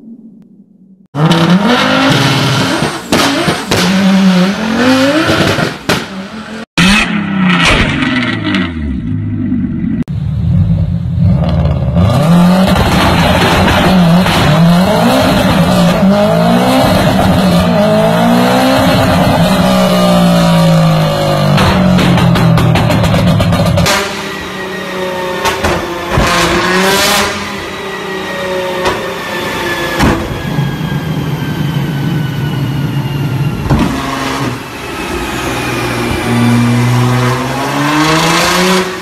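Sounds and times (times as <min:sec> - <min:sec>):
exhaust bangs and pops: 0:01.2 - 0:04.2, 0:05.1 - 0:06.2, 0:12.6 - 0:16.1, 0:21.3 - 0:24.2
car engine revving on dynamometer: 0:01.2 - 0:07.3, 0:11.4 - 0:22.0, 0:23.8 - 0:31.6, 0:33.0 - 0:39.0
rally car engines revving: 0:01.2 - 0:39.0.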